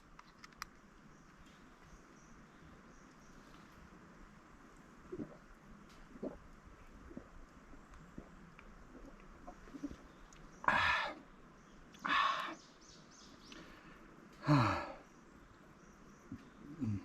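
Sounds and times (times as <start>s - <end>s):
person exhaling breathily: 12.0s - 12.6s, 14.4s - 15.0s
person sighing: 14.4s - 15.0s, 16.8s - 17.0s.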